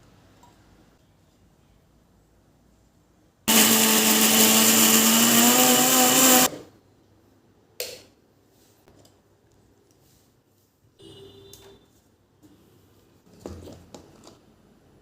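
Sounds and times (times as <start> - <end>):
kitchen mixer grinder motor: 3.5 - 6.5.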